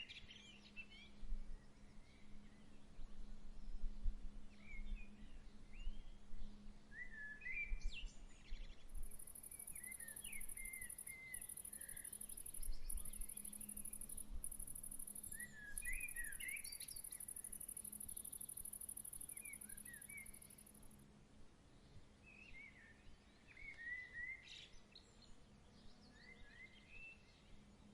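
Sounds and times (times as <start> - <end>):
faint low hum: 0.0 - 27.9
high pulsing insect trill: 9.0 - 20.9.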